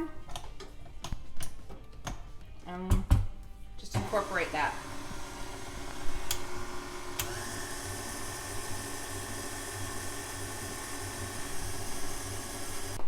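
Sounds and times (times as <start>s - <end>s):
stand mixer motor whine: 4.0s - 13.0s.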